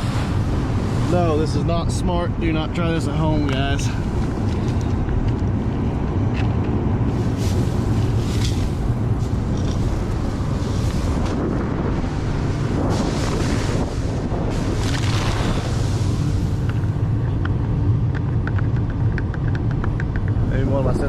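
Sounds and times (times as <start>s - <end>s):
combine harvester humming: 0.0s - 21.0s
wind buffeting microphone: 0.0s - 21.0s.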